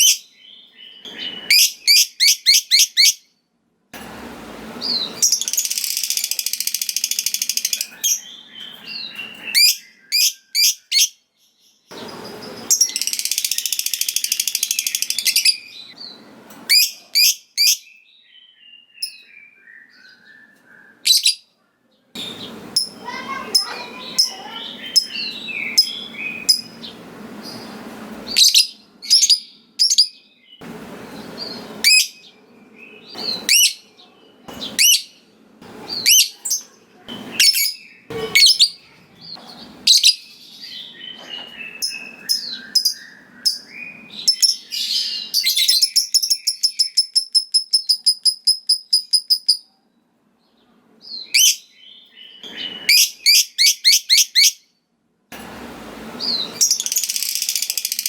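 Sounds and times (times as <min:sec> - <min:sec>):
lovebird chirping: 0:00.0 - 0:03.3, 0:04.8 - 0:21.5, 0:22.2 - 0:35.2, 0:35.8 - 0:49.7
lovebird fast chatter: 0:05.2 - 0:07.9.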